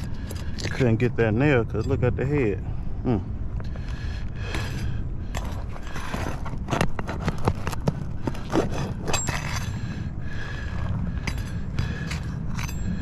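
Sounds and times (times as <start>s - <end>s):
tool scraping roof shingles: 5.4s - 9.7s.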